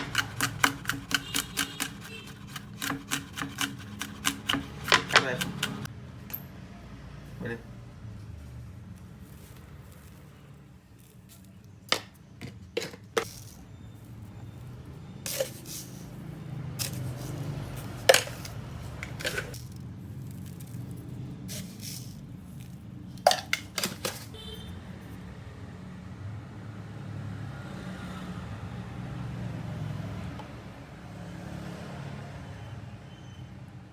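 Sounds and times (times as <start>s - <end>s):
cookware knocking and clinking: 18.0s - 19.6s, 23.3s - 24.3s.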